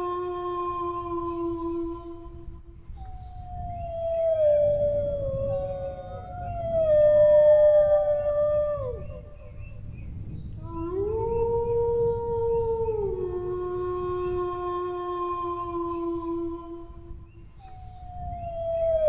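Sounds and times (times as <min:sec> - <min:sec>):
dog howling: 0:03.4 - 0:09.8, 0:10.6 - 0:17.0, 0:18.0 - 0:19.0.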